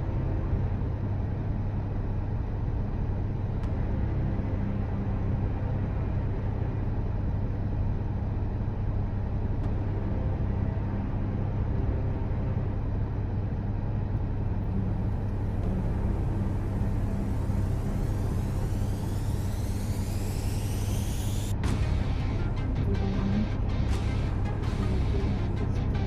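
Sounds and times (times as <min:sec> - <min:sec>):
car engine idling: 0:08.4 - 0:26.0.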